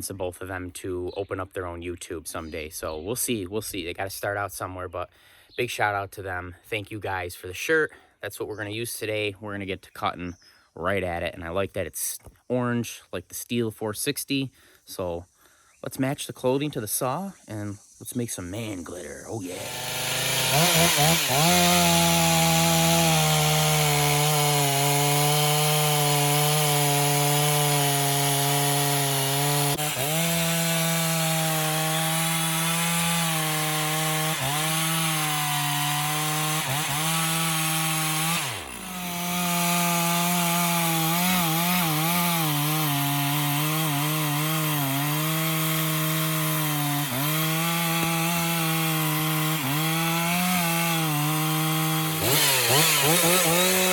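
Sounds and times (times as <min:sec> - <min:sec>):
chainsaw cutting logs: 0:18.6 - 0:53.9.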